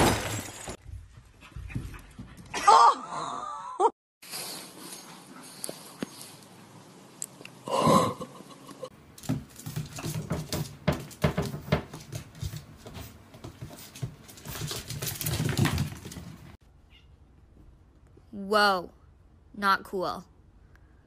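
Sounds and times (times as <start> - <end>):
paws and claws scuffling on tile: 9.1 - 16.6.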